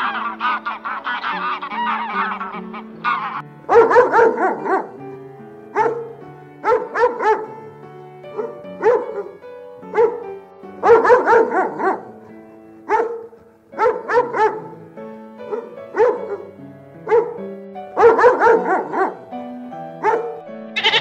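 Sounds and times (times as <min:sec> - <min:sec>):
sheep bleating: 0:00.0 - 0:03.4, 0:20.8 - 0:21.0
puppy yapping: 0:00.0 - 0:04.8, 0:18.0 - 0:19.1, 0:20.0 - 0:21.0
background music: 0:00.0 - 0:21.0.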